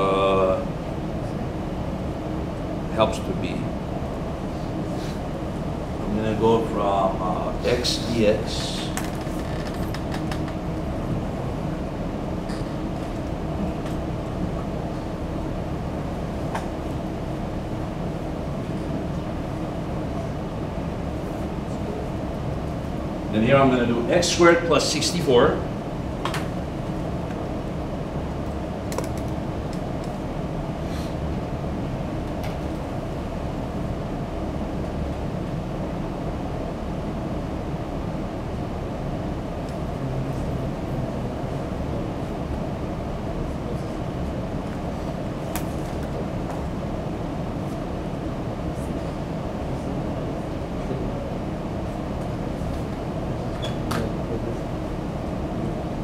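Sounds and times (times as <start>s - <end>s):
low ventilation rumble: 0.0s - 56.0s.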